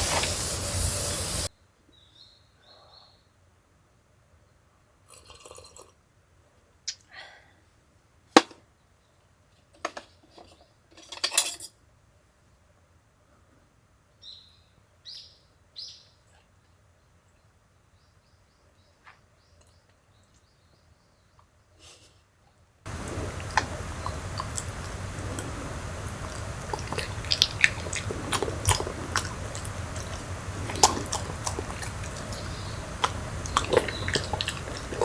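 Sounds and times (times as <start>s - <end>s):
rustling: 0.0s - 1.5s, 22.9s - 35.0s
bird chirps: 31.9s - 35.0s.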